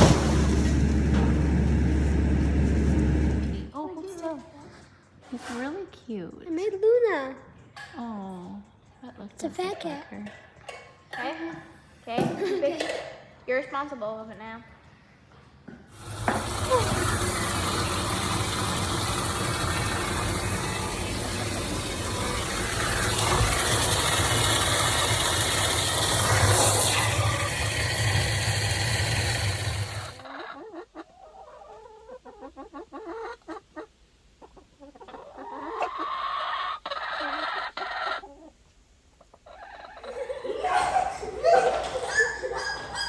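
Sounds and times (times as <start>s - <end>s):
chickens clucking: 16.0s - 28.3s, 29.0s - 43.0s.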